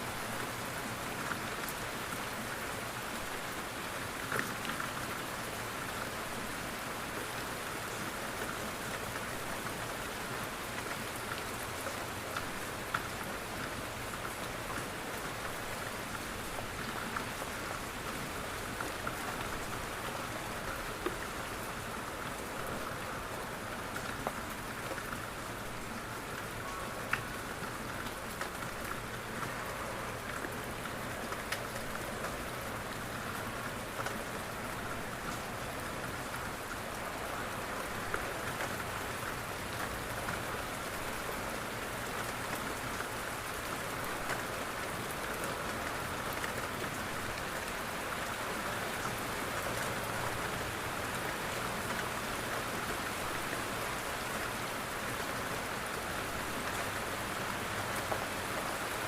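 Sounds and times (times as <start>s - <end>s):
rain on a window: 0.0s - 59.0s
raindrops ticking: 10.4s - 54.3s.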